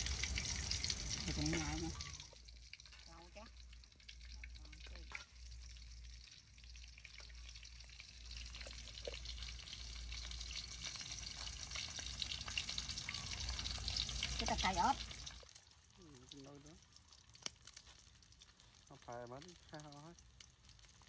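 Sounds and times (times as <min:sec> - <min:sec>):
food sizzling in a pan: 0:00.0 - 0:21.0.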